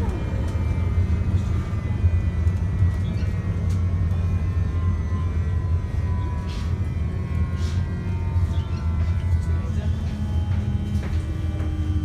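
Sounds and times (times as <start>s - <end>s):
wheels rumbling on rail: 0.0s - 12.0s.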